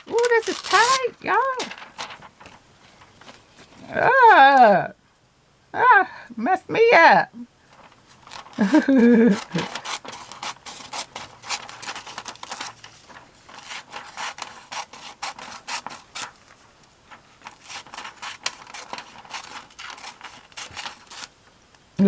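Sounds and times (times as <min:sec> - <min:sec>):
scissors snipping paper: 0:00.0 - 0:01.8, 0:08.3 - 0:12.8, 0:13.5 - 0:16.5, 0:17.4 - 0:21.3.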